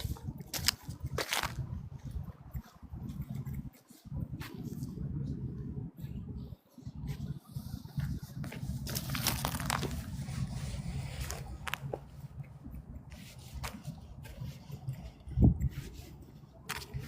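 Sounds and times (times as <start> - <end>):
low rumble: 1.4 - 16.7
crunching and crackling: 8.8 - 10.3.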